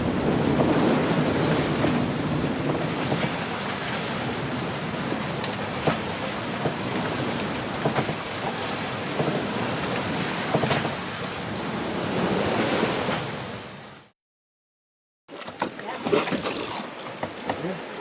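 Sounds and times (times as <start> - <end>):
wind on microphone: 0.0 - 13.6
waves splashing against hull: 0.0 - 14.1, 15.3 - 18.0.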